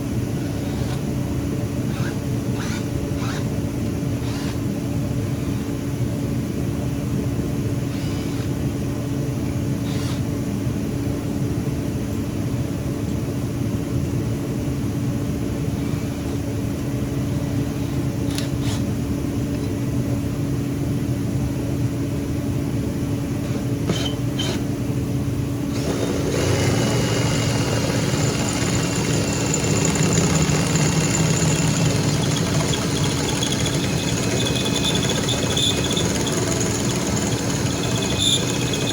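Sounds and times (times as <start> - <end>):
drill bit cutting metal: 1.9 - 3.5, 25.7 - 38.9
electric drill motor humming: 1.9 - 3.5, 4.2 - 4.6, 7.9 - 8.5, 9.8 - 10.2, 25.7 - 38.9.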